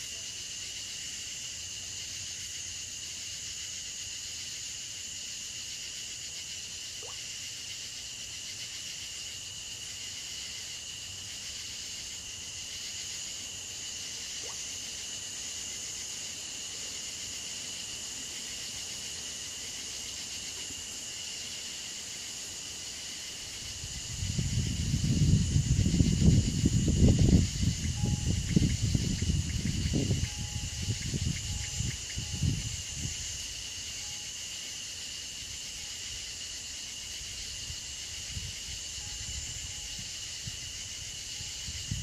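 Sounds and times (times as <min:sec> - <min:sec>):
insects singing: 0:00.0 - 0:42.0.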